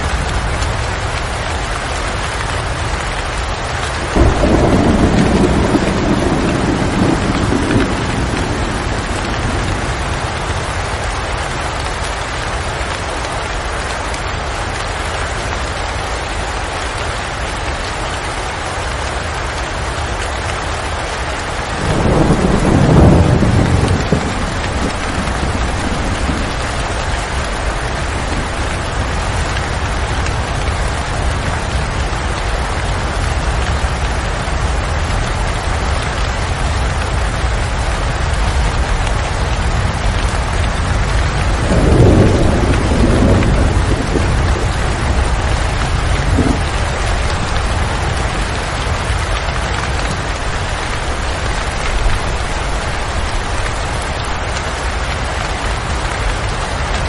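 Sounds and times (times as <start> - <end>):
steady rain falling: 0.0 - 57.0
low rumble of thunder: 3.6 - 11.6, 21.6 - 57.0.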